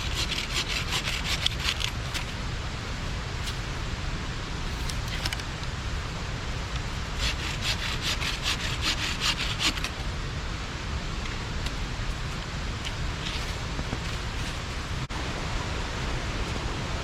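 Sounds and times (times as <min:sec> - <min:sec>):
hand saw cutting wood: 0:00.0 - 0:02.3, 0:07.2 - 0:10.0
steady rushing noise: 0:00.0 - 0:17.0.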